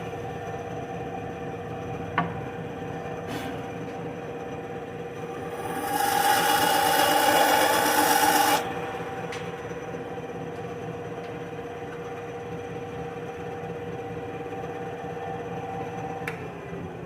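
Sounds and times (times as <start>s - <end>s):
saw motor humming: 5.3s - 8.7s
bandsaw cutting wood: 5.4s - 8.7s.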